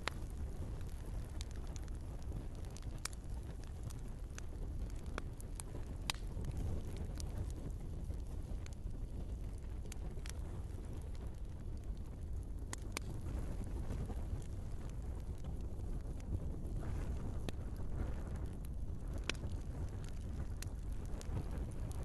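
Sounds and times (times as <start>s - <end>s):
log fire crackling: 0.0s - 22.0s.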